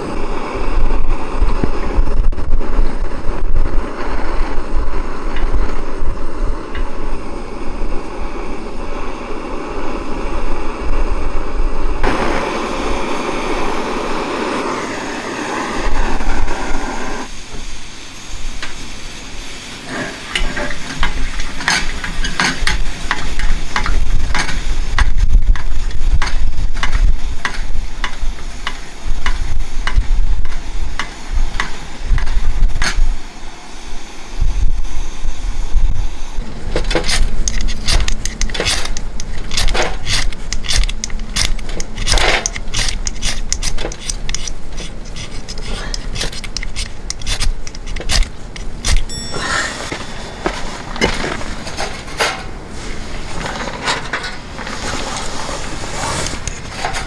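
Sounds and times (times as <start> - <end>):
utensils scraping cookware: 19.9 - 33.1, 36.4 - 57.0.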